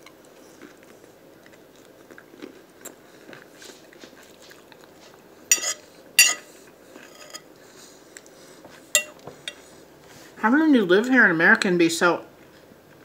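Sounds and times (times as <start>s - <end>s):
chewing salad: 0.0s - 9.8s
metal fork scraping a plate: 5.5s - 7.5s, 9.0s - 9.6s.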